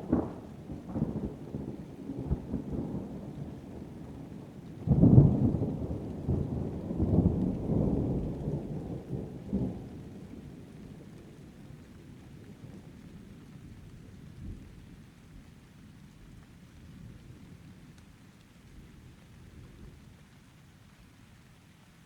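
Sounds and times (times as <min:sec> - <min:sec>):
thunder rumbling: 0:00.0 - 0:11.4
steady rain: 0:00.0 - 0:22.0.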